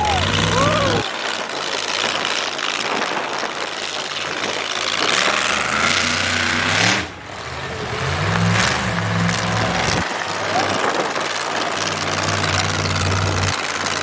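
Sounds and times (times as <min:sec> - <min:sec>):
truck engine with rising whine: 0:00.0 - 0:01.1, 0:04.2 - 0:14.0
noisy din: 0:00.0 - 0:01.3.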